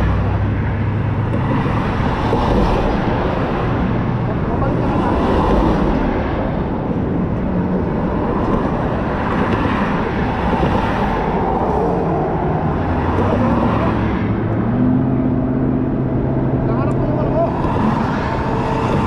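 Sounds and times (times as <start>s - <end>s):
road and wind noise: 0.0s - 19.0s.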